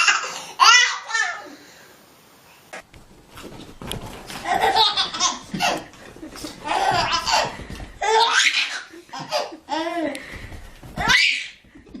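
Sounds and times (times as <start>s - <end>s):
baby laughing: 4.4s - 10.3s, 11.0s - 12.0s.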